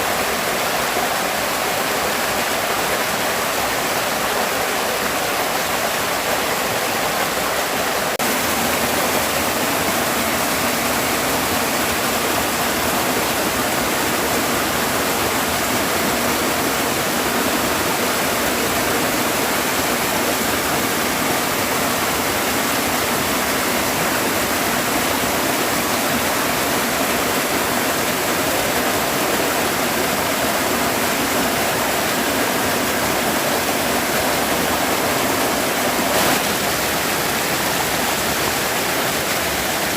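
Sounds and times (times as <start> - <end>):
stream flowing over small falls: 0.0 - 39.9.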